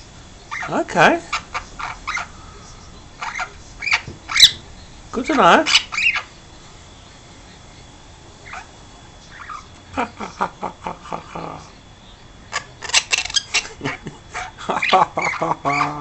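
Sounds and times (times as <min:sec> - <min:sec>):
parrot chattering and squawking: 0:00.5 - 0:02.4, 0:03.1 - 0:04.6, 0:05.3 - 0:06.4, 0:08.4 - 0:09.8, 0:12.5 - 0:16.0.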